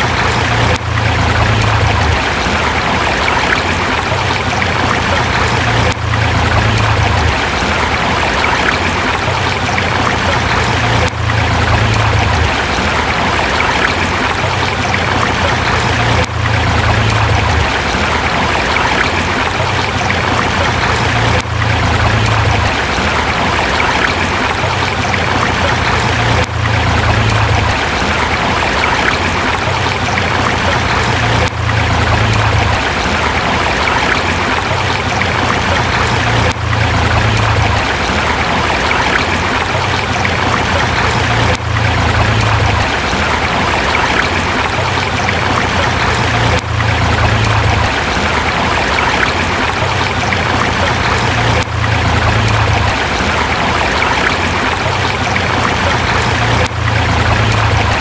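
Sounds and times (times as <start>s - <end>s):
river flowing over rocks: 0.0s - 58.0s.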